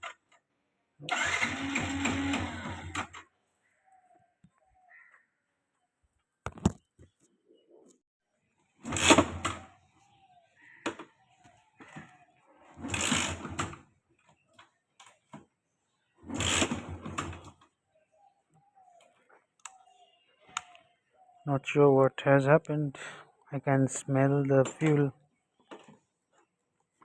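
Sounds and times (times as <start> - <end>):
motorcycle engine cranking: 1.0 - 3.2, 12.8 - 13.9, 16.2 - 17.6.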